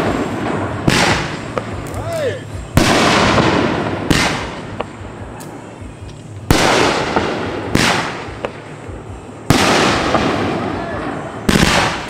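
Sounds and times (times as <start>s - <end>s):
fireworks bangs: 0.0s - 12.0s
hissing crackle: 0.0s - 12.0s
small fireworks pops: 0.0s - 12.0s.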